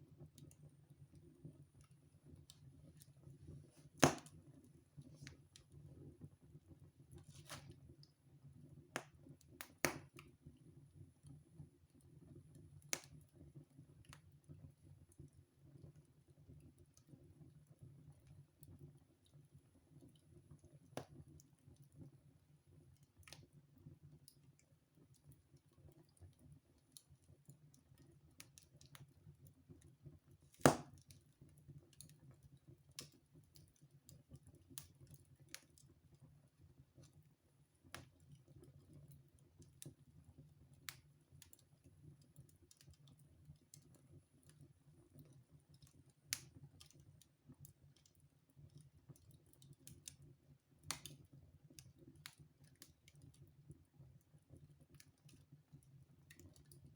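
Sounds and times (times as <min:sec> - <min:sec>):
wood fire crackling: 0:01.2 - 0:05.8, 0:07.0 - 0:08.1, 0:09.0 - 0:10.4, 0:24.1 - 0:56.9
fire snaps and pops: 0:01.8 - 0:05.8, 0:07.1 - 0:08.1, 0:09.0 - 0:10.4, 0:12.8 - 0:13.3, 0:24.2 - 0:36.2, 0:37.0 - 0:53.8.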